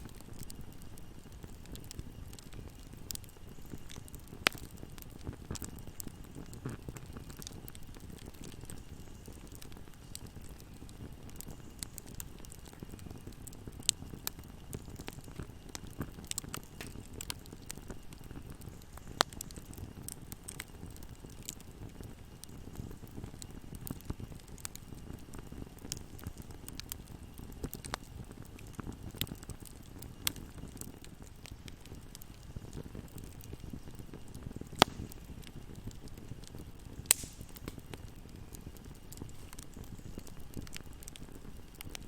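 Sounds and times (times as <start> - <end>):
fire crackling: 0.0 - 42.0
sharp pops of fire: 0.0 - 42.0
wood fire burning: 0.0 - 42.0.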